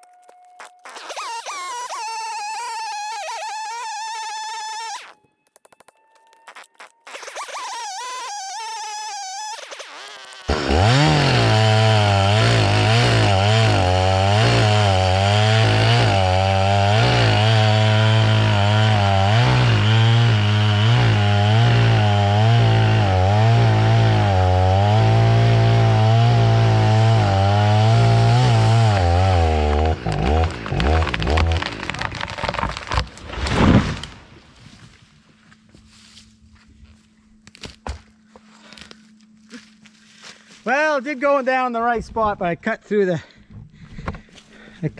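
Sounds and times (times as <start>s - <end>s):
chainsaw cutting tree trunk: 0.6s - 5.2s, 6.5s - 34.3s.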